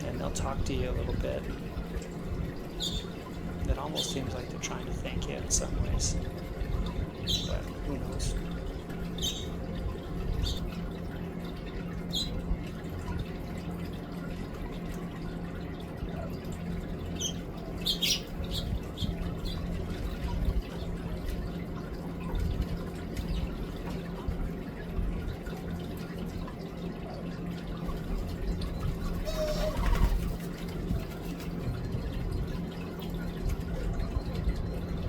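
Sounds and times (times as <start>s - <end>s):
garden fountain trickling: 0.0s - 35.0s
small birds chirping: 2.6s - 6.2s, 7.1s - 9.7s, 10.4s - 10.7s, 12.1s - 12.4s, 17.2s - 19.8s.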